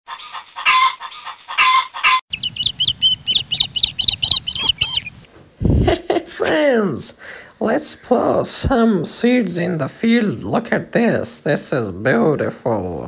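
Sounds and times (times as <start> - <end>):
harsh bird calls: 1.6 - 5.3
high repeated bird chirps: 2.3 - 5.3.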